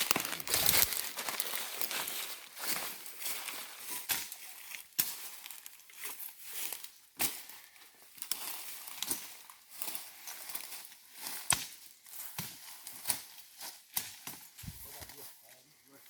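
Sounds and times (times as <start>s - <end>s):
twigs snapping: 0.0s - 2.2s
dry leaves and twigs crunching: 0.0s - 16.0s.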